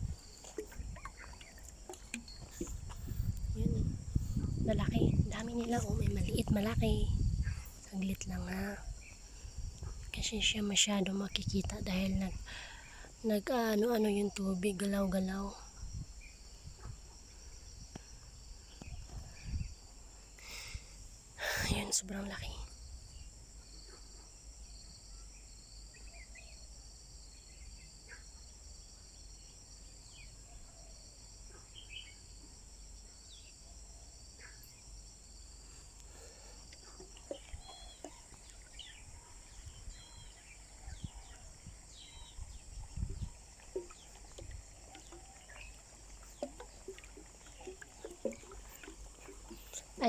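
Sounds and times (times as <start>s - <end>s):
birds chirping: 0.0s - 9.2s, 36.1s - 50.0s
insects trilling: 0.0s - 50.0s
pulsing insect call: 0.0s - 50.0s.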